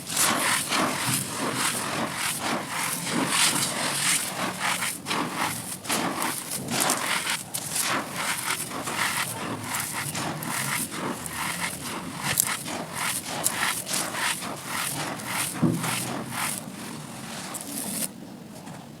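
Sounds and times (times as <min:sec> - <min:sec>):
dirt chunks crunching: 0:04.4 - 0:18.1.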